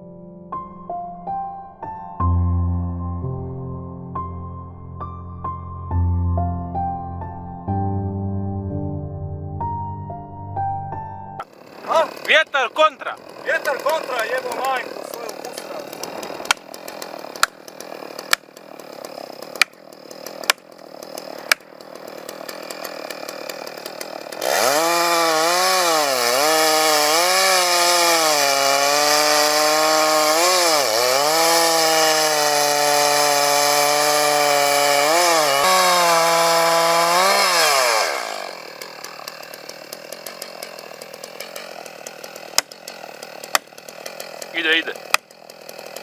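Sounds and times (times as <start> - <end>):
chainsaw revving: 11.4 - 46.0.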